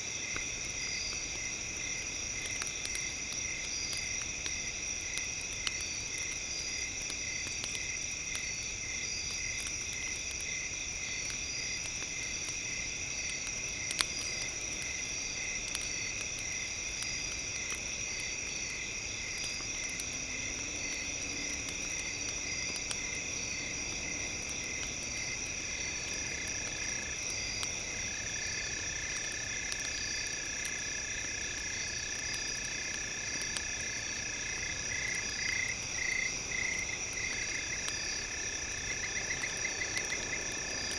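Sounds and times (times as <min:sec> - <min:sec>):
campfire crackling: 0:00.0 - 0:40.9
fire popping: 0:00.0 - 0:40.9
insects chirping: 0:00.0 - 0:40.9
frogs trilling: 0:13.2 - 0:40.9.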